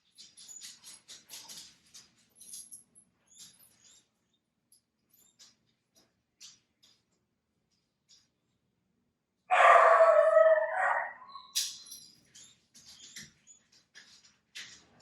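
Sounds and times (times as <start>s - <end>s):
loud animal call: 9.5s - 11.5s.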